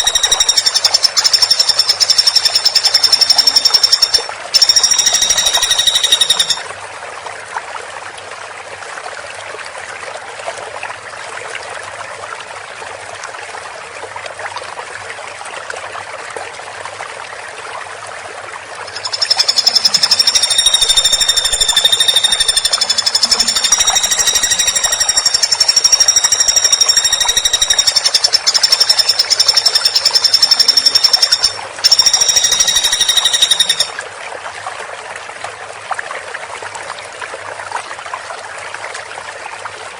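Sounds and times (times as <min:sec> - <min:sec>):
woodpecker rattling trills: 0:00.0 - 0:06.6, 0:18.9 - 0:33.9.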